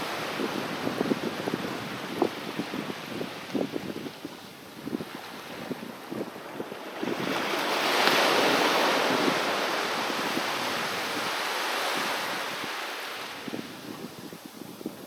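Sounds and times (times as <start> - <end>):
sea wave breaking on shore: 4.9 - 14.4.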